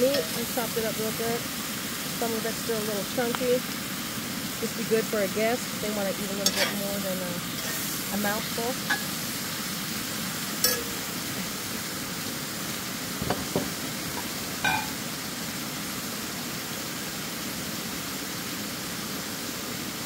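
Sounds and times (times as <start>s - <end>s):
food sizzling in a pot: 0.0s - 20.0s
short ringing clink: 10.6s - 11.0s.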